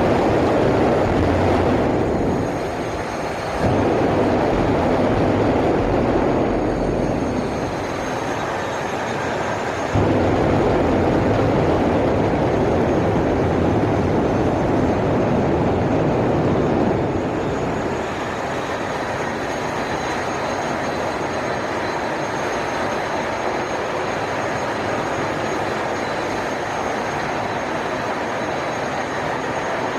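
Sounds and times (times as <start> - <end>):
faint high whine: 0.0 - 29.9
jet engine roaring: 0.0 - 29.9.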